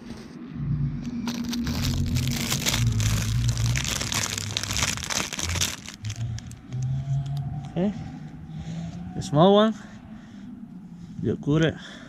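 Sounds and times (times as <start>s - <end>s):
packaging crinkling: 1.2s - 6.9s.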